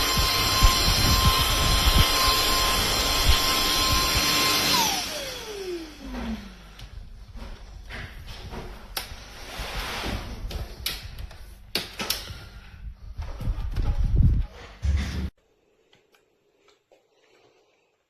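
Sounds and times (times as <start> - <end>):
stick vacuum running: 0.0 - 7.6.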